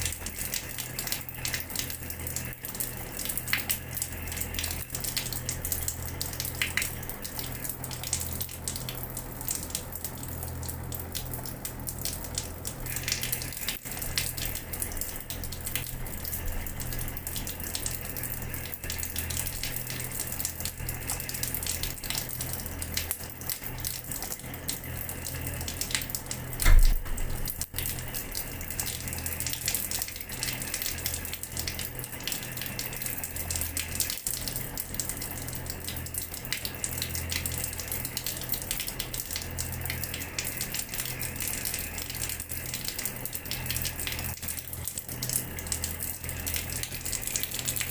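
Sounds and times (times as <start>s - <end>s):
water running from a tap: 0.0s - 47.9s
low thump: 26.6s - 27.2s.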